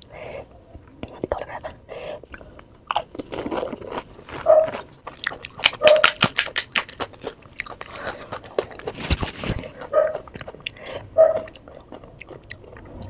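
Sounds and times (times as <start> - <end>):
crunching crisp fried snack: 2.8 - 10.7.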